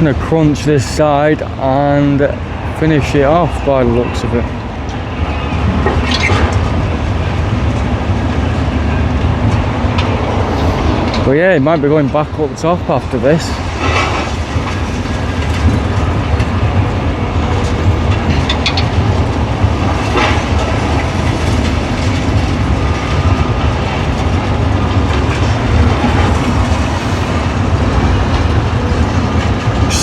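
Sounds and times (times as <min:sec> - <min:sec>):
excavator engine rumbling: 0:16.0 - 0:21.7, 0:23.9 - 0:29.2.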